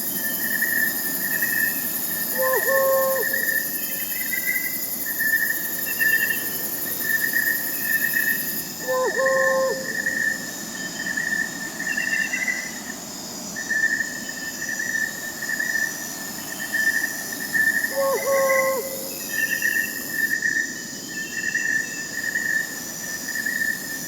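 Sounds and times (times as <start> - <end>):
crickets chirping: 0.0 - 24.0
owl hoot: 2.3 - 3.6, 8.8 - 10.4, 17.8 - 19.5.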